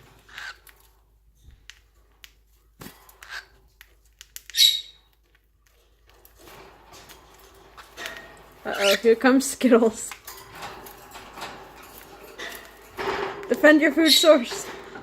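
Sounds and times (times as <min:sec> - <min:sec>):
birds pecking at food: 0:00.0 - 0:15.0
bird squawk: 0:04.5 - 0:05.0.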